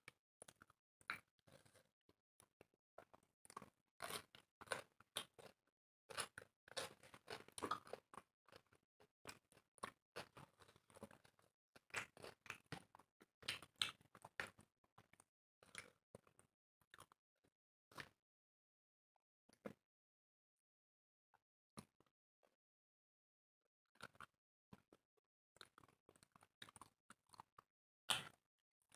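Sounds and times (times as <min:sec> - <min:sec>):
people chewing and crunching food: 0:00.1 - 0:17.2, 0:17.9 - 0:18.2, 0:24.0 - 0:25.0, 0:25.6 - 0:28.9.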